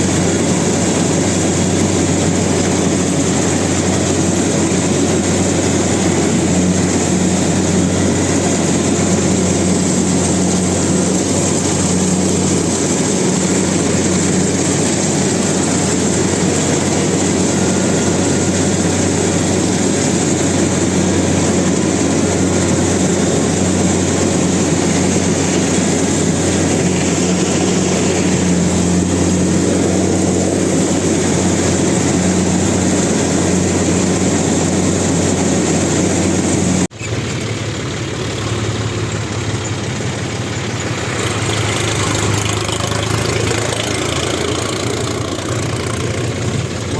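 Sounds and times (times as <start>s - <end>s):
diesel engine rumbling: 0.0s - 46.9s.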